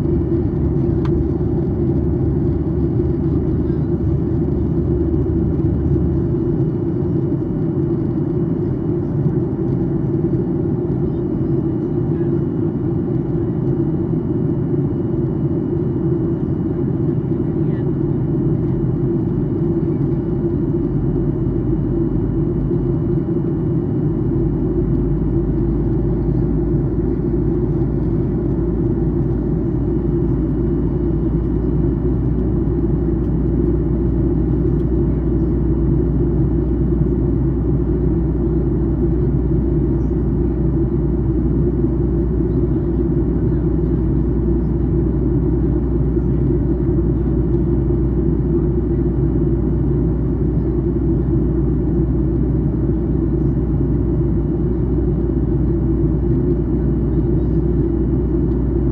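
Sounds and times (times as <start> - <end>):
deep hum: 0.0 - 8.2
airplane cabin drone: 0.0 - 58.9.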